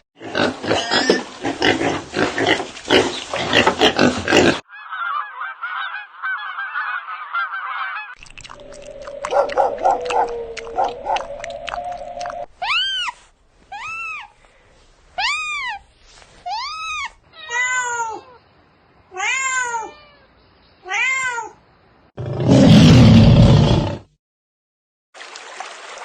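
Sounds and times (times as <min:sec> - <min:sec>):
animal calling: 0:04.3 - 0:13.2.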